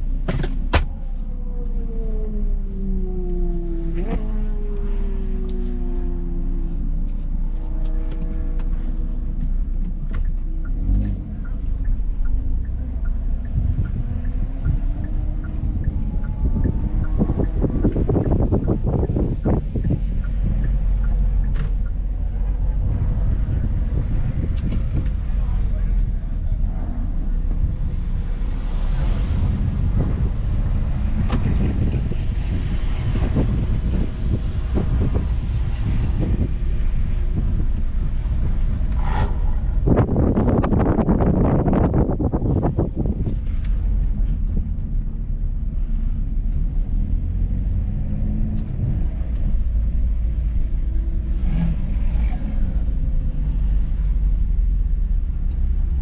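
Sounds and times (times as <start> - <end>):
car engine running at low revs: 0.0 - 56.0
faint regular tick: 7.0 - 22.7, 48.4 - 49.6, 54.8 - 55.7
wind buffeting microphone: 10.6 - 56.0.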